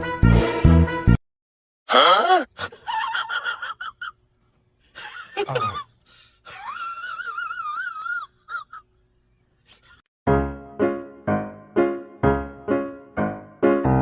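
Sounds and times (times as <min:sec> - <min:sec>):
person wailing: 0:01.9 - 0:02.5
piano music: 0:10.3 - 0:14.0.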